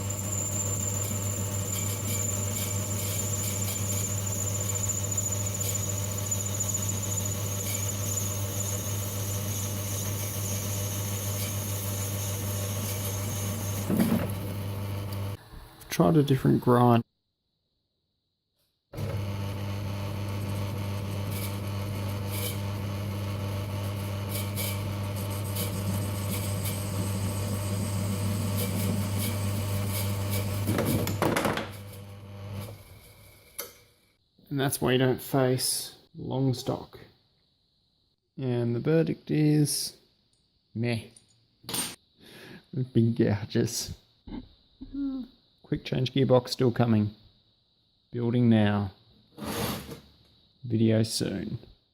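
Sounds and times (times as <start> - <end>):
high-pitched squeal: 0.0 - 13.9
lathe tool chatter: 0.0 - 13.9, 24.3 - 30.5
metal lathe humming: 0.0 - 15.4, 19.0 - 30.7
brief scrape: 49.4 - 50.0.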